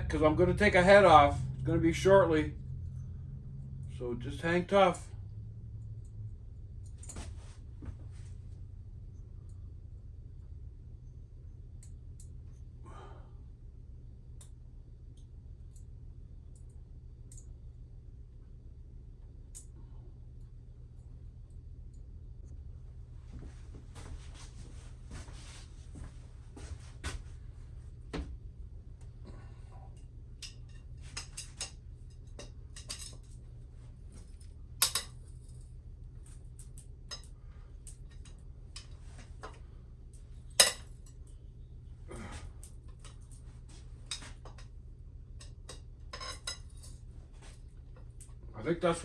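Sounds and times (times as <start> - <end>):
steady low hum: 0.0 - 49.0
hand tools clicking and tapping: 34.8 - 35.1, 40.6 - 40.8.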